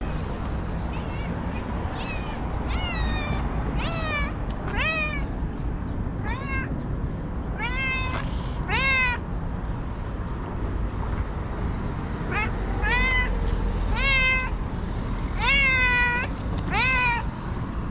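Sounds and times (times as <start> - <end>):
cat meowing: 0.8 - 5.4, 6.2 - 6.8, 7.6 - 9.2, 12.3 - 14.6, 15.4 - 17.3.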